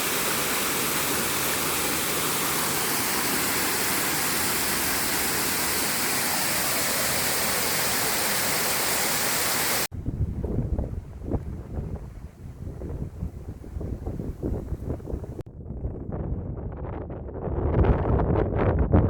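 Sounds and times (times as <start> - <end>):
waterfall rushing: 0.0 - 9.9
wind gusting against microphone: 0.0 - 19.0.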